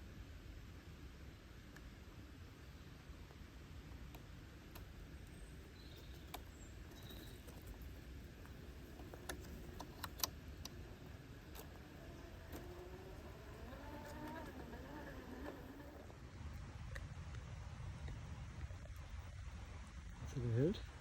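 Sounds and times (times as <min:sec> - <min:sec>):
faint high chirps: 0:05.1 - 0:07.7
sharp clicks: 0:05.9 - 0:16.0.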